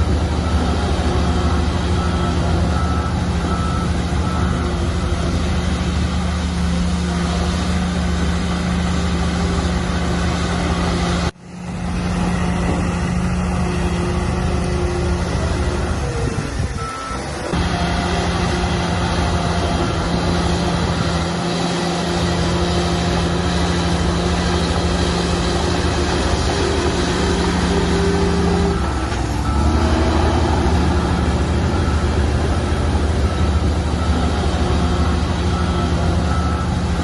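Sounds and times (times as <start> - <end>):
bulldozer diesel engine running: 0.0 - 37.0
faint reversing alarm beeping: 0.3 - 5.4, 16.8 - 21.4, 24.4 - 37.0.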